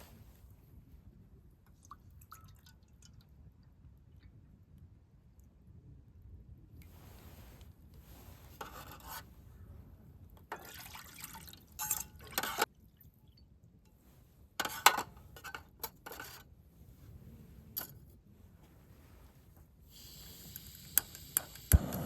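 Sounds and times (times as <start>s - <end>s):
liquid pouring and dripping: 1.6s - 4.8s, 10.5s - 13.6s.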